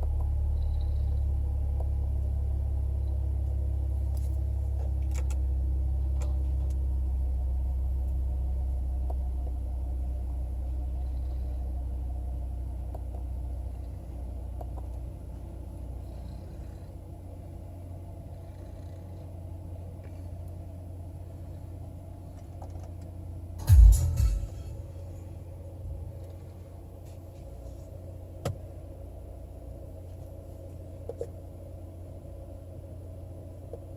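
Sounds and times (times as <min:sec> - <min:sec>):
car engine idling: 0:00.0 - 0:33.9
loud thump: 0:23.6 - 0:24.8.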